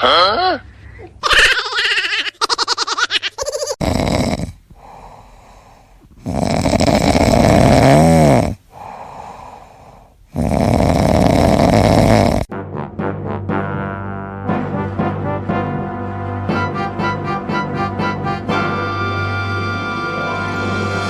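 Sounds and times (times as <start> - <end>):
loud snoring: 3.8 - 5.2, 6.2 - 9.6, 10.3 - 12.5
quiet breaths: 4.0 - 12.5.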